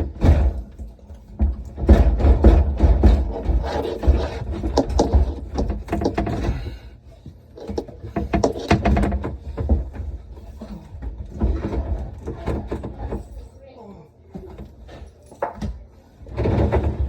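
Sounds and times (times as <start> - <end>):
knocks and clicks of tools: 0.0 - 13.4.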